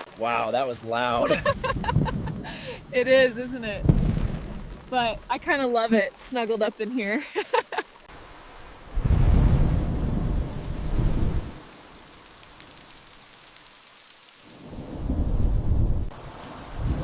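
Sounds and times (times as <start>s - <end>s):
heavy rain: 0.0s - 17.0s
thunder rumbling: 1.0s - 5.7s, 8.6s - 11.8s, 14.5s - 16.1s.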